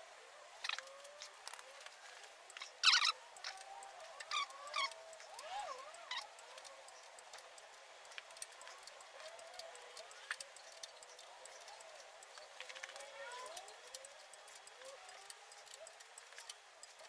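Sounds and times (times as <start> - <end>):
low background noise: 0.0 - 17.0
faint bird calls: 0.6 - 7.2
light sharp clicks: 0.6 - 17.0.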